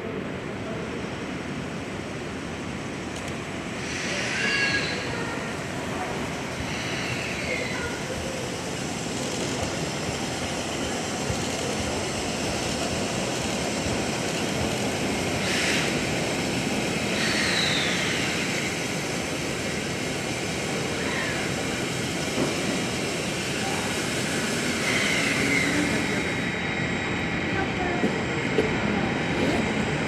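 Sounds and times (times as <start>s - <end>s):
steam locomotive escaping steam roar: 3.6s - 28.0s
sharp steam hiss: 3.7s - 5.5s, 8.7s - 26.6s.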